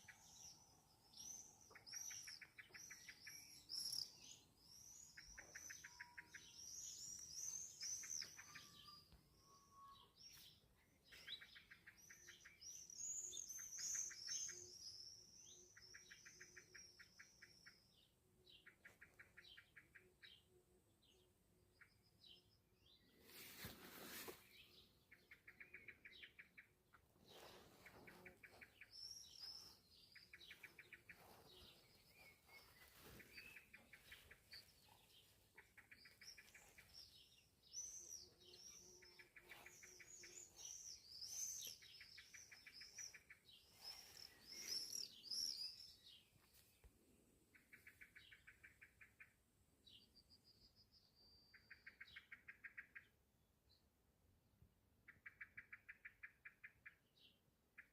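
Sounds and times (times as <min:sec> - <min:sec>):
birds chirping: 0:18.6 - 0:46.6.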